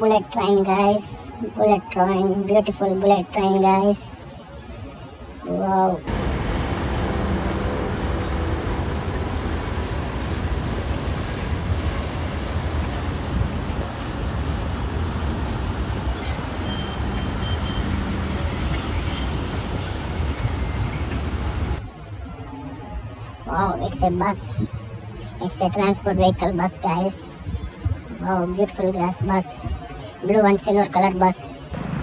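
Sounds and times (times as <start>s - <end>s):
rumbling vehicle noise: 6.0s - 22.0s.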